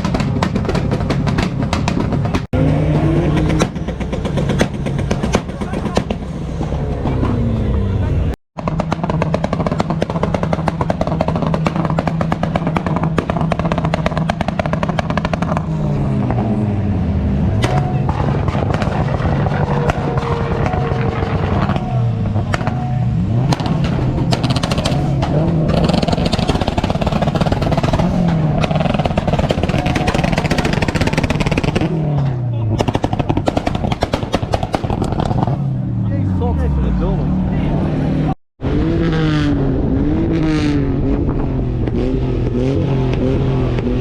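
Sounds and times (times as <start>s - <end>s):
exhaust pops and bangs: 0.0s - 7.6s, 8.6s - 16.6s, 17.6s - 35.8s
car engines revving: 0.0s - 44.0s.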